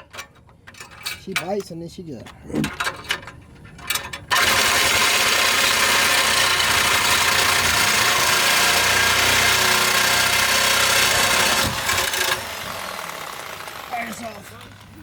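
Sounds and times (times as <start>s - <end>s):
power tool grinding metal: 4.3s - 15.0s.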